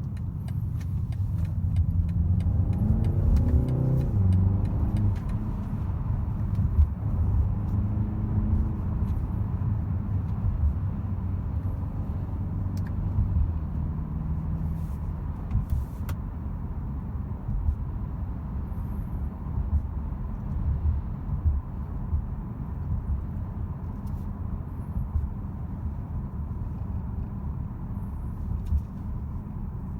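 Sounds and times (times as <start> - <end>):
car engine running: 0.0 - 29.9
low road rumble: 0.0 - 29.9.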